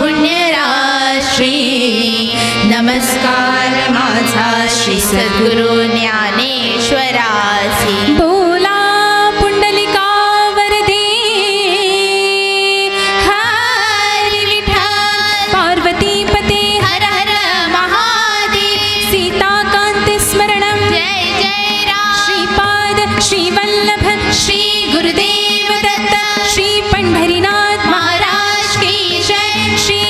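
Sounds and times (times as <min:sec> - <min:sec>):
women singing devotional song: 0:00.0 - 0:30.0.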